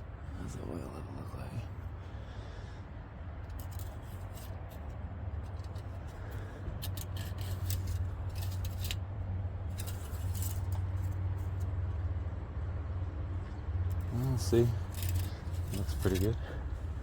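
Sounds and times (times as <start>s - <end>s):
steady low rumble: 0.0s - 17.0s
metallic dipstick scrapes and clicks: 3.5s - 9.0s, 9.7s - 11.7s, 13.9s - 16.4s.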